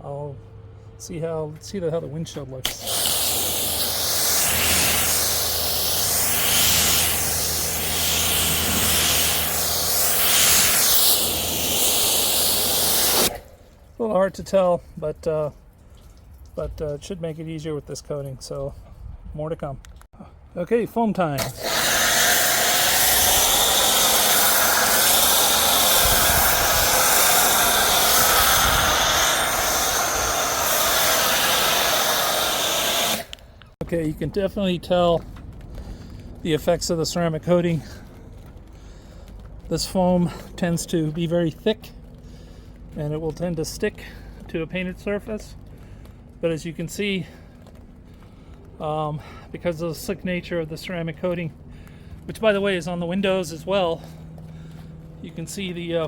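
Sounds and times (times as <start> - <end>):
pressure washer jet hissing: 2.6 - 13.6, 21.4 - 33.6.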